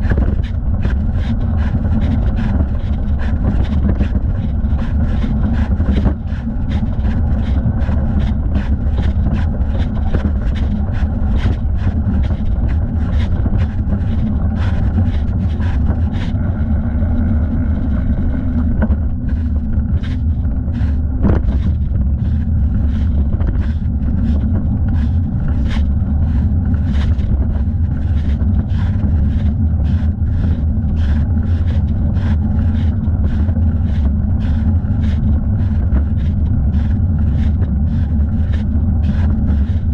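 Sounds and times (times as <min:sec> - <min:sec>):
bicycle rolling rumble: 0:00.0 - 0:39.9
rustle and knock of pedalling: 0:00.0 - 0:39.9
wind: 0:00.0 - 0:39.9.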